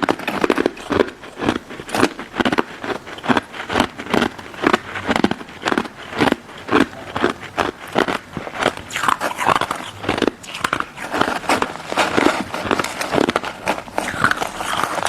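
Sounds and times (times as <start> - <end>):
crunching of icy dessert chewed: 0.0 - 15.0.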